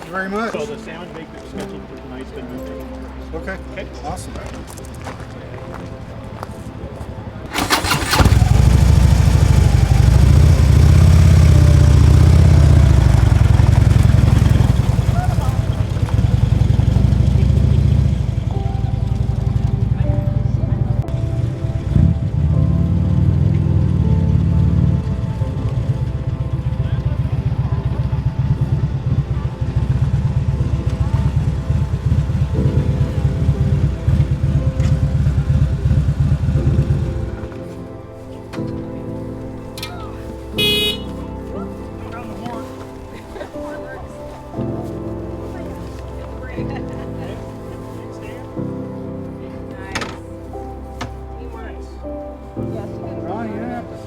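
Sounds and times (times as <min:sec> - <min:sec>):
background music: 0:00.0 - 0:54.0
electric starter cranking: 0:07.5 - 0:18.5
motorcycle engine idling: 0:07.5 - 0:37.4, 0:40.6 - 0:41.4.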